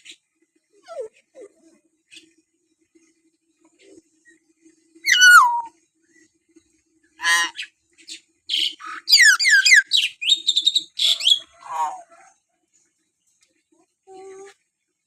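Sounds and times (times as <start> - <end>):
myna bird whistling and squawking: 5.0 - 5.7, 7.2 - 7.7, 8.5 - 12.0.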